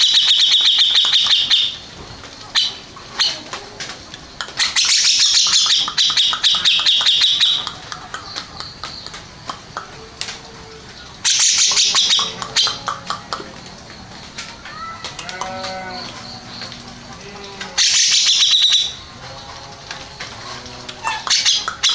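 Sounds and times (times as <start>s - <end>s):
bird rapid high chattering: 0.0s - 1.8s, 4.4s - 10.0s, 11.2s - 13.5s, 17.8s - 19.1s, 21.0s - 21.9s.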